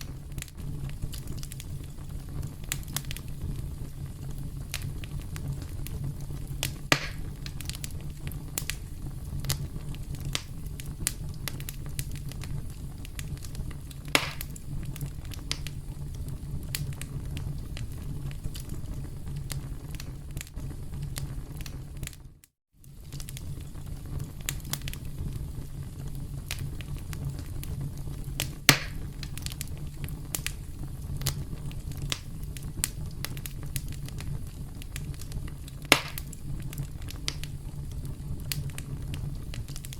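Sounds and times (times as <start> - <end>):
low steady rumble: 0.0 - 22.0
campfire crackling: 0.0 - 39.9.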